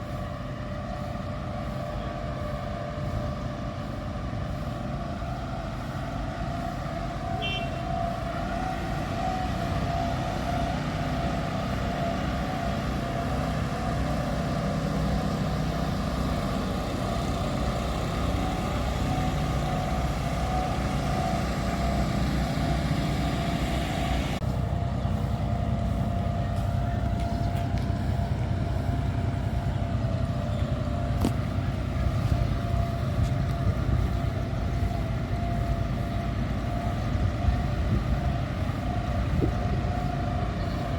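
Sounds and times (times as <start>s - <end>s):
engine droning: 0.0s - 40.9s.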